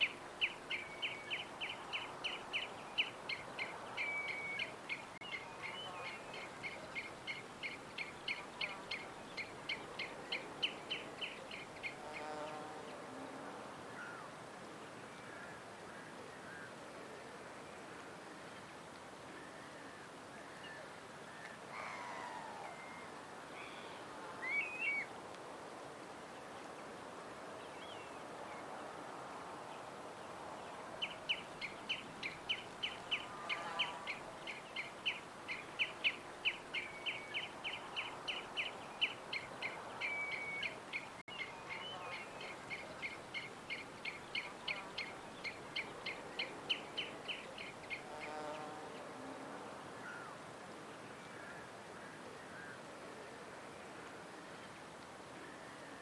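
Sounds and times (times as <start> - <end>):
songbirds chirping: 0.0 - 13.1, 29.6 - 49.2.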